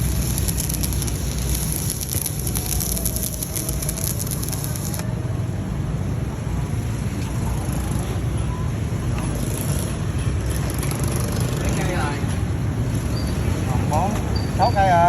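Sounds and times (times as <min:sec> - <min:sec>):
welding arc crackling and sizzling: 0:00.0 - 0:05.1.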